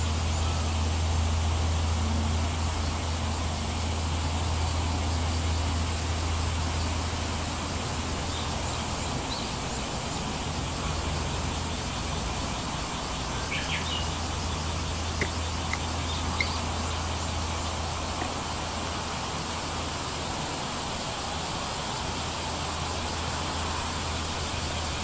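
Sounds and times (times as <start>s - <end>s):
high bird chirps: 13.5s - 16.9s
sharp ticks: 14.8s - 17.0s.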